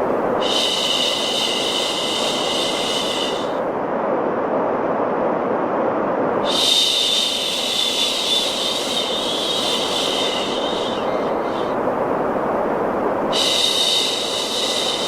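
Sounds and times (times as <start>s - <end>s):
steady white noise: 0.0s - 15.0s
person shushing: 0.4s - 3.6s, 6.5s - 11.8s, 13.3s - 15.0s.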